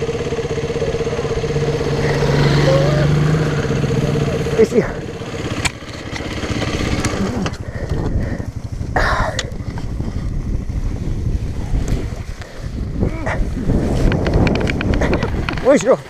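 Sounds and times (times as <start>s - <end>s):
motorbike engine running: 0.0s - 15.9s
wind noise on microphone: 6.8s - 16.0s.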